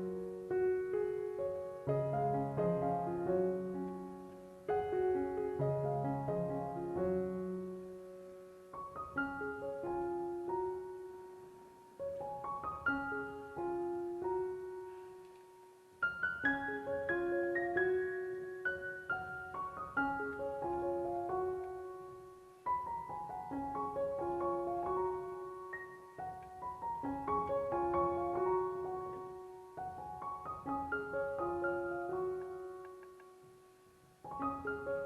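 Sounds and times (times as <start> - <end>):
slow solo piano melody: 0.0 - 35.0.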